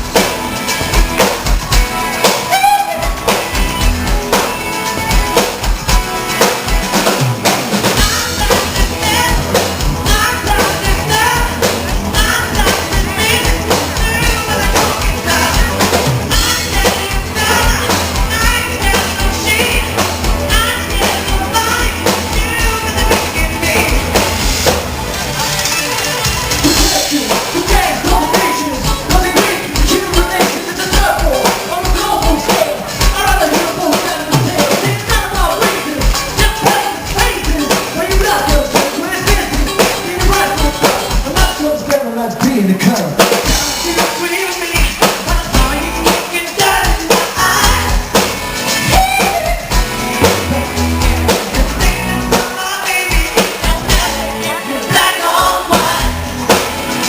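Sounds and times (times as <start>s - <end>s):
driving drum beat: 0.0s - 57.0s
live pop band playing: 0.0s - 57.0s
man singing: 8.0s - 24.2s, 26.6s - 48.1s, 48.8s - 56.3s.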